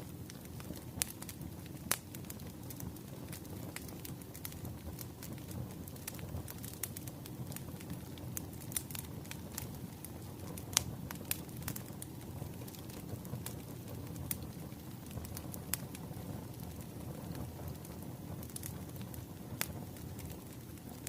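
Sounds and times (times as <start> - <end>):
fire crackling and popping: 0.0 - 21.0
wood fire rumbling: 0.0 - 21.0.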